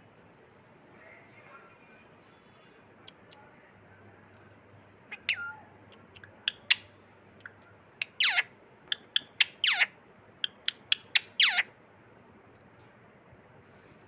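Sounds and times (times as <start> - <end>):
parrot chirping: 5.1 - 11.7.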